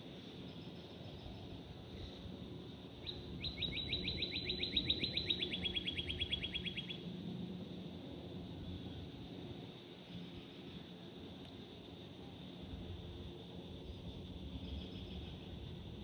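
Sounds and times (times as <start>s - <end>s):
songbird trilling: 3.0s - 7.0s.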